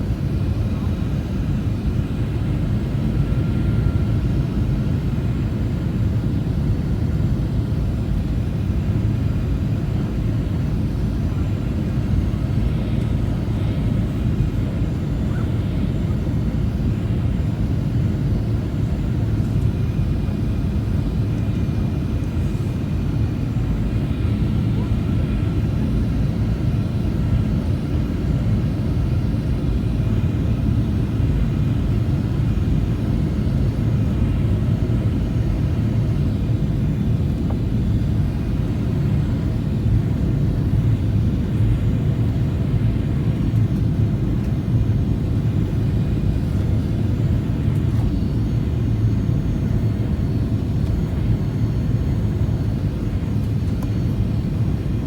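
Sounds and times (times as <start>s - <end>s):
airliner cabin rumble: 0.0s - 55.0s
faint steady whine: 0.0s - 55.0s.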